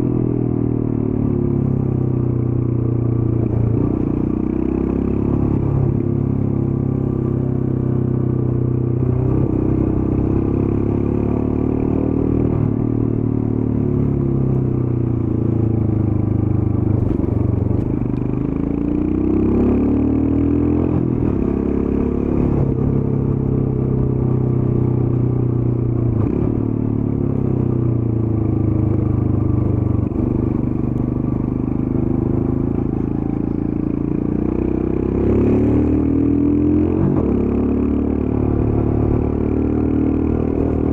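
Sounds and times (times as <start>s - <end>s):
motorcycle engine running: 12.6s - 20.0s, 20.9s - 40.9s.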